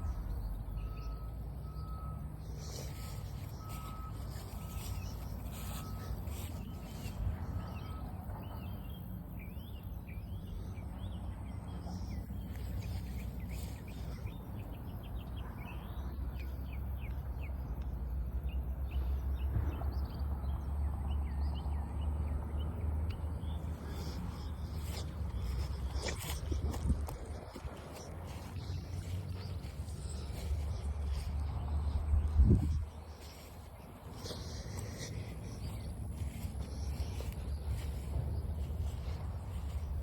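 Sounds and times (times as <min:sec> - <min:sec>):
vehicle reversing beeper: 0:00.0 - 0:08.8.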